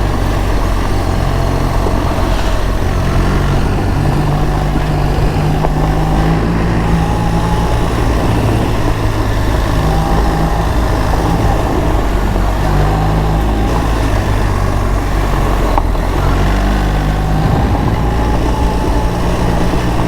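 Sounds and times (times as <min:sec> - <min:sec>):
motorcycle engine running: 0:00.0 - 0:20.0
tyre noise: 0:00.0 - 0:20.0
wind rushing: 0:17.2 - 0:20.0.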